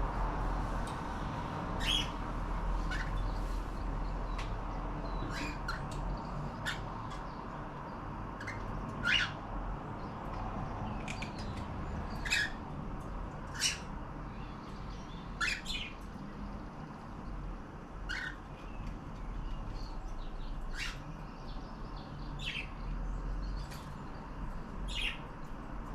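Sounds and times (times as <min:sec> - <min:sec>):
cockatiels chirping and squawking: 0:01.8 - 0:03.7, 0:05.0 - 0:07.2, 0:08.4 - 0:09.4, 0:12.1 - 0:12.6, 0:13.5 - 0:13.9, 0:15.2 - 0:16.0, 0:18.0 - 0:18.6, 0:20.6 - 0:21.1.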